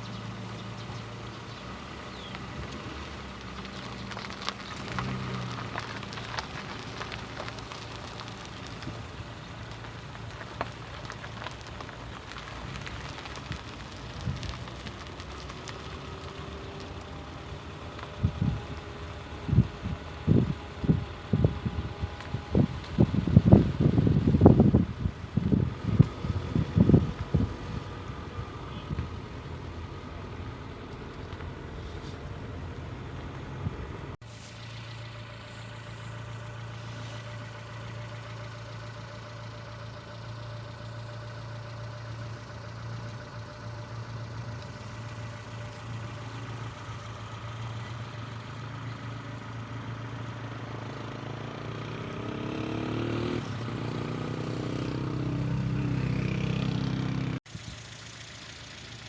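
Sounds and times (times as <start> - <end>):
engine running: 0.0 - 59.0.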